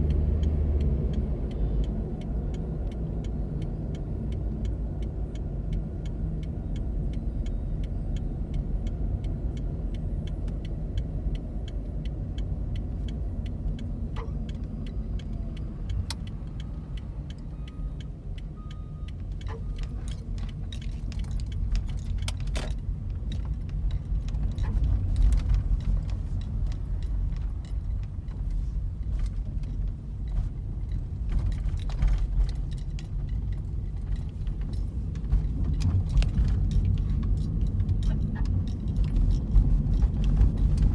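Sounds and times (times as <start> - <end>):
car road rumble: 0.0 - 40.9
light jangling and clicking: 19.3 - 40.9.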